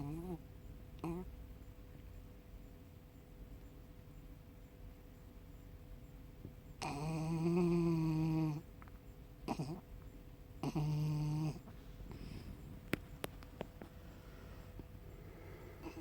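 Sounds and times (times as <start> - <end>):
small dog snoring: 0.0 - 0.4, 1.0 - 1.3, 6.8 - 8.7, 9.4 - 9.9, 10.6 - 12.4, 15.7 - 16.0.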